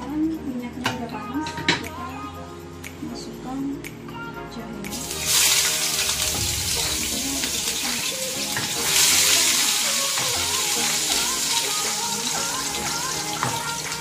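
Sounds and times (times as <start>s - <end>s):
ginger sizzling in hot oil: 5.0s - 14.0s.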